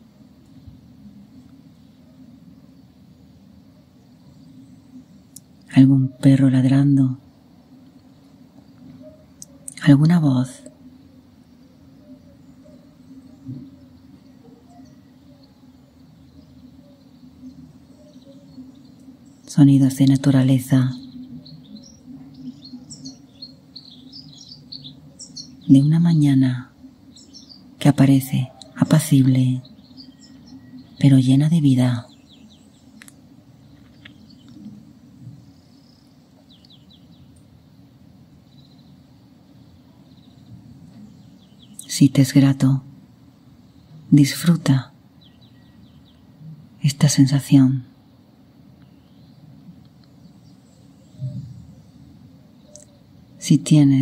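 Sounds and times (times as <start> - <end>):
distant birds chirping: 0.0 - 54.0
low background noise: 0.0 - 54.0
low steady background hum: 0.0 - 54.0.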